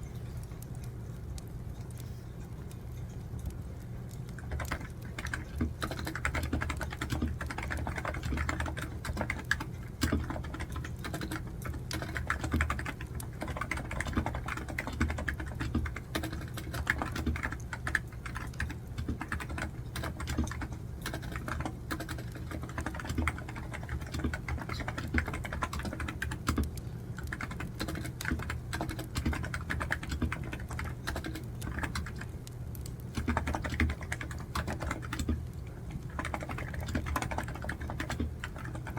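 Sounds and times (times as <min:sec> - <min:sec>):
keyboard typing clicks: 0:03.4 - 0:38.9.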